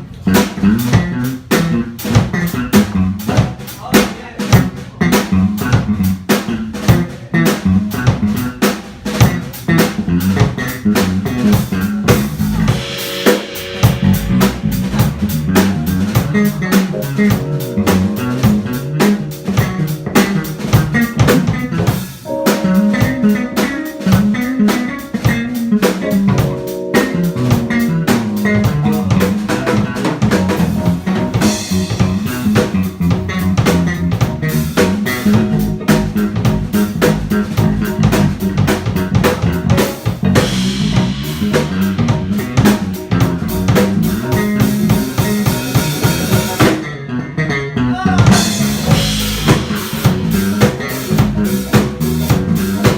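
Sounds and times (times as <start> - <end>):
walking bass line: 0.0 - 3.7, 4.5 - 52.9
drum kit with snare and rimshots: 0.0 - 52.9
piano chords: 9.2 - 47.2, 48.3 - 52.9
guitar chords: 9.3 - 52.9.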